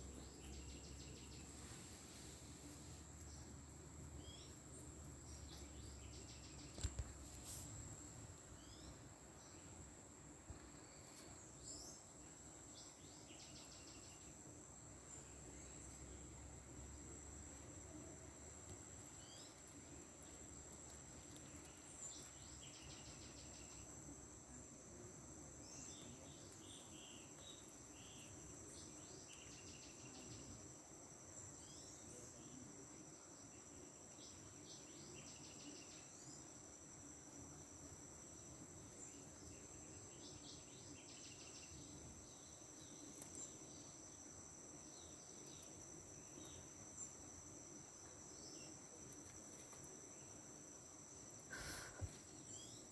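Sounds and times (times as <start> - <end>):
crickets chorus: 0.0 - 52.9.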